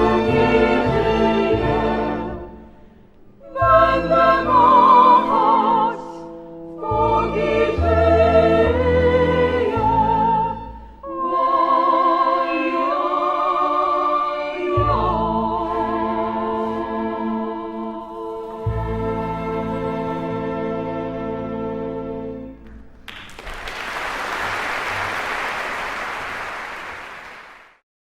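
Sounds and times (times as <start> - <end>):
operatic singing: 0.0 - 2.5, 3.4 - 21.3.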